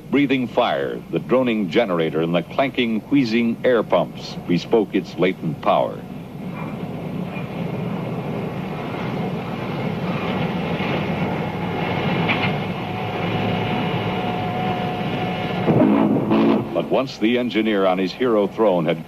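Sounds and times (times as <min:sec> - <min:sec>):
faint steady whine: 0:00.0 - 0:19.0
steam locomotive hiss and rumble: 0:00.0 - 0:19.0.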